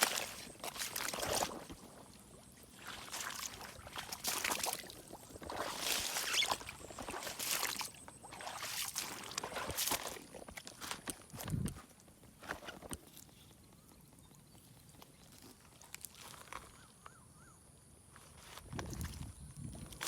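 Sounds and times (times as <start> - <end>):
water splashing and sloshing: 0.0 - 11.8.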